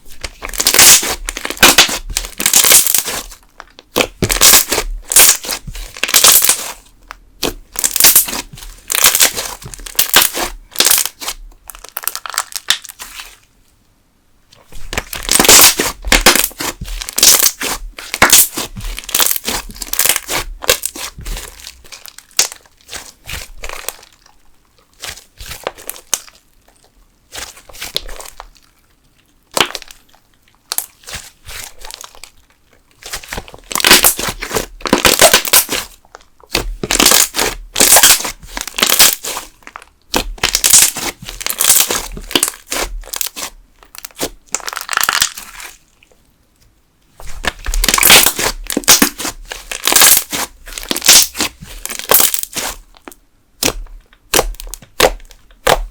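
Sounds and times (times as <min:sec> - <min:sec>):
slime squished with popping bubbles: 0:00.2 - 0:06.8, 0:07.4 - 0:13.1, 0:14.8 - 0:24.3, 0:33.0 - 0:45.8, 0:47.3 - 0:55.9.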